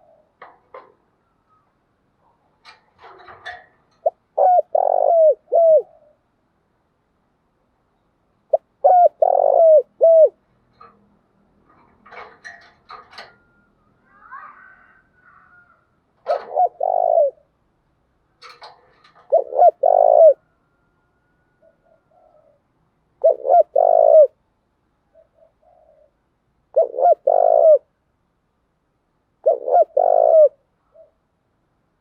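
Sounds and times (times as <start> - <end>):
dove cooing: 2.6 - 6.2, 8.5 - 11.0, 14.0 - 17.5, 18.4 - 22.6, 23.2 - 24.4, 25.1 - 27.9, 29.4 - 31.2.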